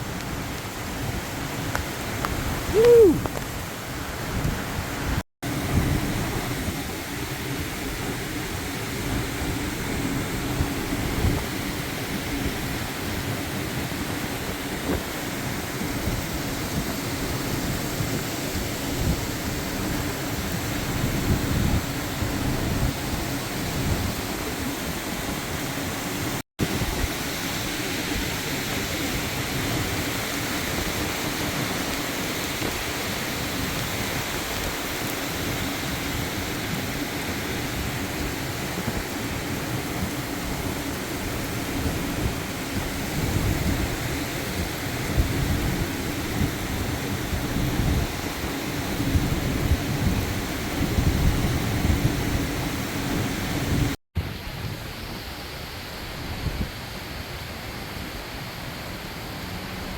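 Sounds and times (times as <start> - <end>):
wind buffeting microphone: 0.0 - 55.3
heavy rain: 0.0 - 59.9.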